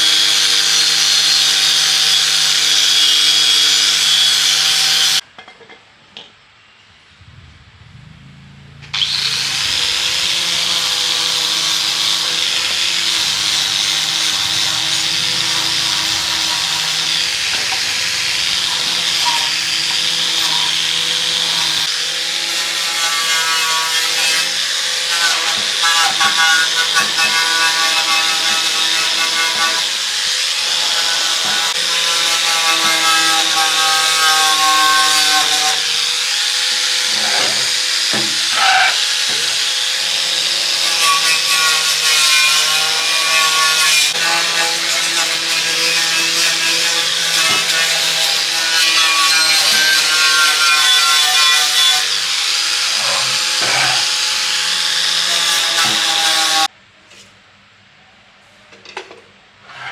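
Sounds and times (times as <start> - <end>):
electric power tool whining: 0.0 - 5.2, 8.9 - 22.8, 52.0 - 56.7.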